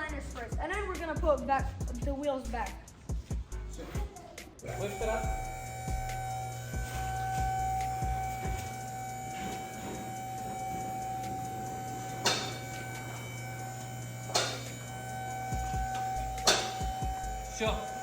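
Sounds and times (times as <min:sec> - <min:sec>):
car jack mechanical hum: 0:04.6 - 0:18.0.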